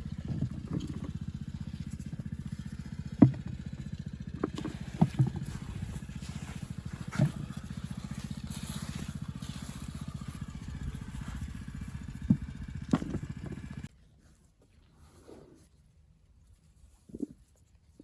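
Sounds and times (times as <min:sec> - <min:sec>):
small engine running: 0:00.0 - 0:13.9.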